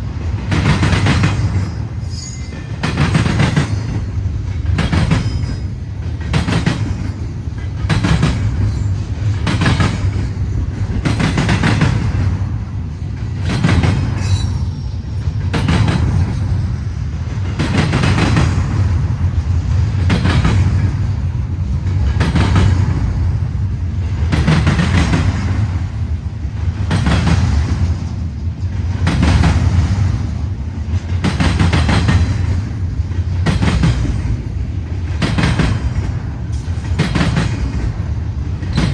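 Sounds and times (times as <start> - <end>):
low train rumble: 0.0 - 38.9
train wheels clacking over rails: 0.0 - 38.9
high squeal: 1.8 - 2.7, 14.2 - 15.0.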